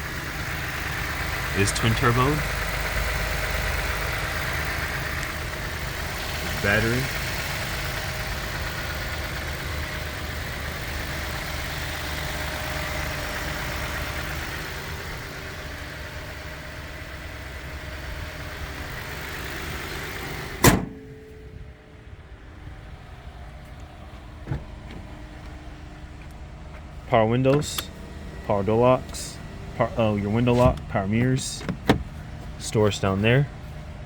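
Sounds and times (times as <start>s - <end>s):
car engine idling: 0.0s - 34.0s
car hood slamming shut: 20.6s - 21.3s, 31.6s - 32.1s.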